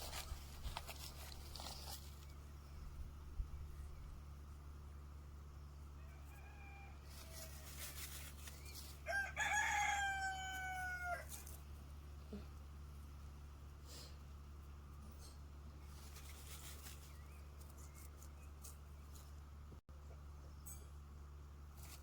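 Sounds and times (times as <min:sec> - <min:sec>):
steady low hum: 0:00.0 - 0:22.0
rooster crowing: 0:06.0 - 0:08.1, 0:08.9 - 0:11.5.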